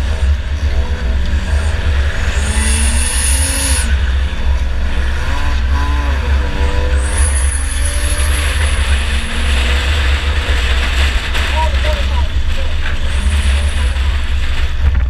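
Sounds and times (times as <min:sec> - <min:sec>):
race car engine revving: 0:00.0 - 0:15.0
thin high whine: 0:01.4 - 0:04.2.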